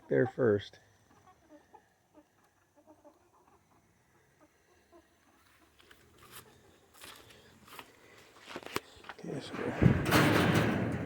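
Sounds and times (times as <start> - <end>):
chickens clucking: 0.0 - 7.3.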